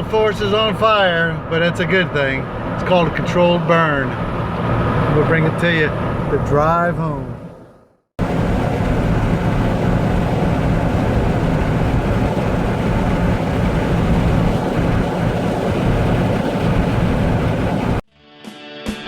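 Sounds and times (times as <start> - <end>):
vehicle driving noise: 0.0 - 18.0
low hum: 7.3 - 18.0.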